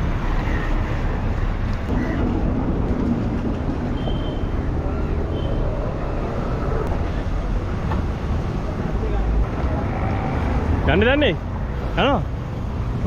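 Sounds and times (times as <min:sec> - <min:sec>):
low rumble: 0:01.1 - 0:10.9.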